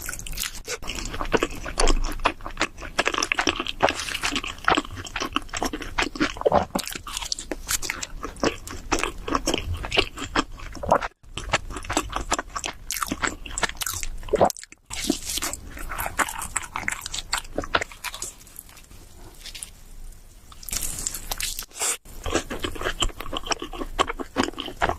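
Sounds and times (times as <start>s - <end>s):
crunchy bites and wet chewing: 0.0s - 18.8s, 20.5s - 24.9s.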